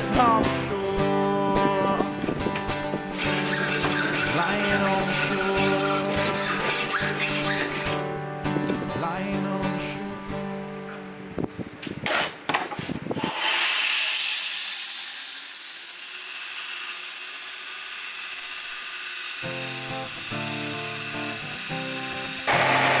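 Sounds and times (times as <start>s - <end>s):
power grinder on steel: 3.0s - 8.0s, 13.2s - 23.0s.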